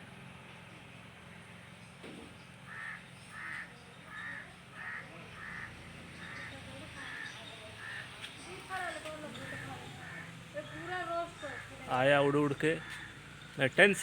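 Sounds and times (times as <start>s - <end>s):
bird calling: 2.6s - 12.0s.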